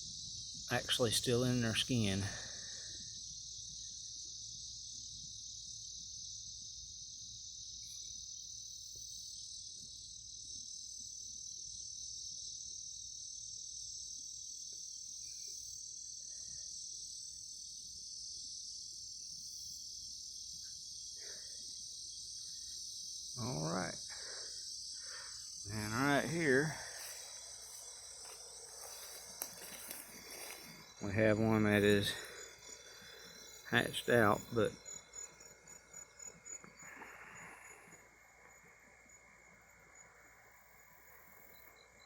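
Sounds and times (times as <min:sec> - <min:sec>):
crickets trilling: 0:00.0 - 0:42.0.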